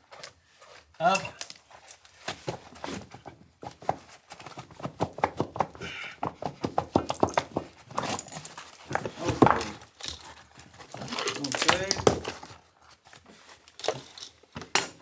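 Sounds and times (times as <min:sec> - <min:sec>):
hard objects knocking and clicking: 0:04.6 - 0:10.2, 0:10.9 - 0:12.5.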